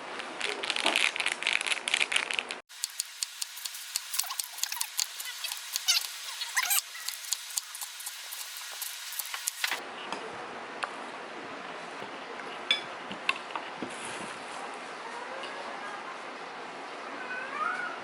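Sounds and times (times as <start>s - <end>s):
steady hiss: 2.7s - 9.8s.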